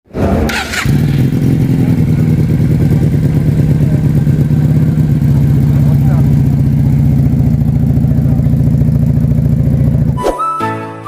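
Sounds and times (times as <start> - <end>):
motorcycle engine running: 0.1 - 10.2.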